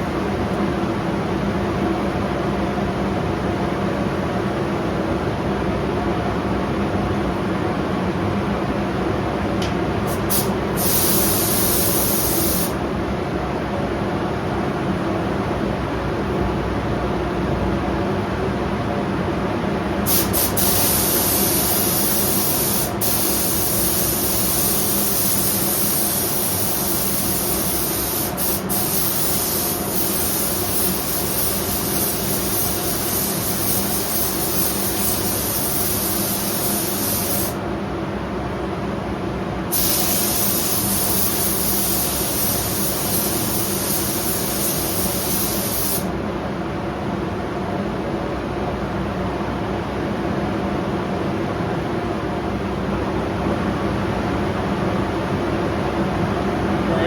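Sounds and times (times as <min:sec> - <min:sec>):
ventilation fan running: 0:00.0 - 0:57.0
paint spray gun hissing: 0:10.1 - 0:12.8, 0:20.1 - 0:37.6, 0:39.7 - 0:46.1.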